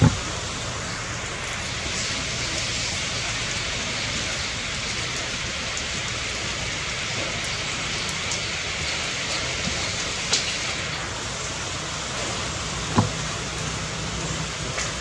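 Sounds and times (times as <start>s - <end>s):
short thump: 0.0s - 0.4s, 12.9s - 13.3s
steady rain falling: 0.0s - 15.0s.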